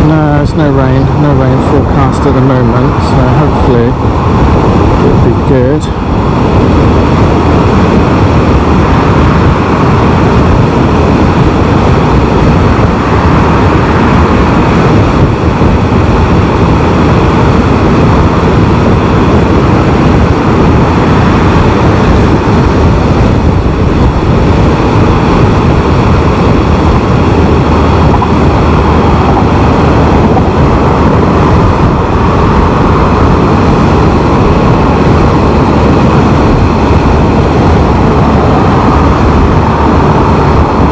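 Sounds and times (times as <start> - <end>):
motorcycle engine: 0.0 - 40.9
road noise: 0.0 - 40.9
wind rush: 0.0 - 40.9.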